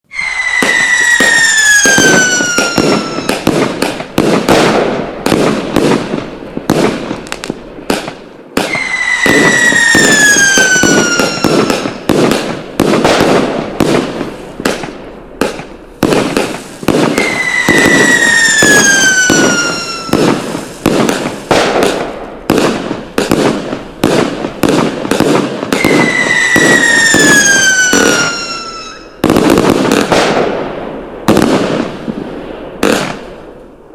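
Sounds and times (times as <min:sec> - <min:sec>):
firework falling whistle: 0:00.1 - 0:03.5, 0:08.6 - 0:12.1, 0:16.5 - 0:20.7, 0:25.7 - 0:29.4
firecracker bangs crackling: 0:00.4 - 0:33.6.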